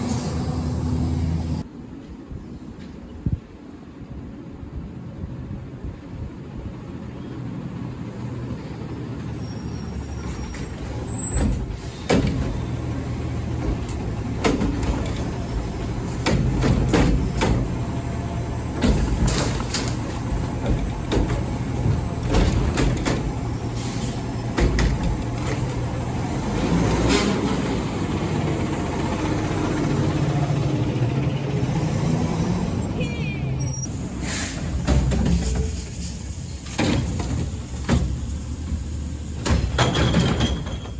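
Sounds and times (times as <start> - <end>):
garbage truck engine running: 7.9 - 40.9
bin clanking and knocking: 13.5 - 17.8, 18.7 - 23.5, 24.5 - 25.8, 39.4 - 40.9.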